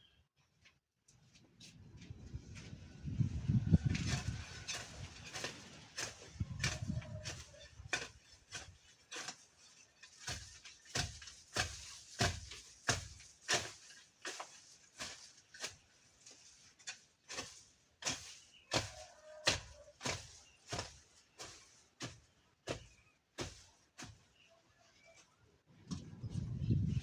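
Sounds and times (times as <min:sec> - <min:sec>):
hand tool striking brush and soil: 0:03.8 - 0:25.1.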